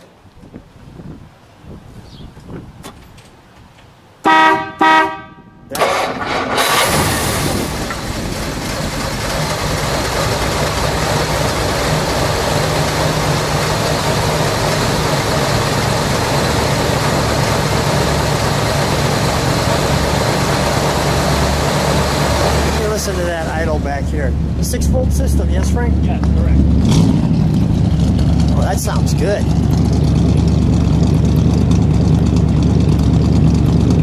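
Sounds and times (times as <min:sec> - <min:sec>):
car horn blasts: 0:04.2 - 0:06.0
car engine cranking and idling: 0:05.7 - 0:34.0.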